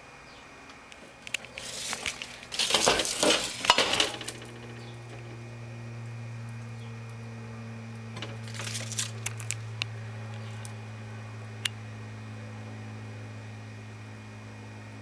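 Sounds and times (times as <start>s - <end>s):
steady low hum: 0.0s - 15.0s
objects clattering and rustling: 1.3s - 5.3s, 8.2s - 9.6s.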